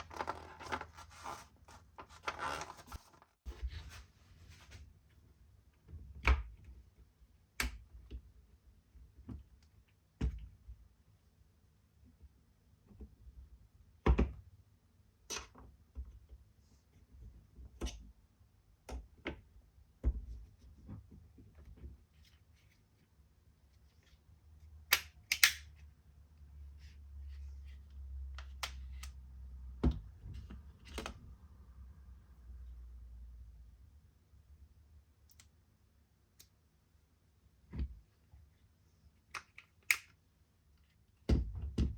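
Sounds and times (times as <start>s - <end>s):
plastic case clicks and snaps: 24.9s - 25.7s.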